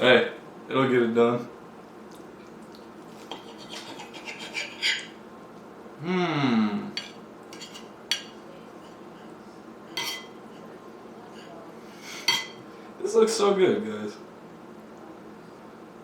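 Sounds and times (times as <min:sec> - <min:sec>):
cutlery scraping on plate: 0:03.2 - 0:05.2, 0:07.0 - 0:09.3, 0:09.9 - 0:10.7, 0:11.3 - 0:12.6
person humming: 0:06.0 - 0:06.9.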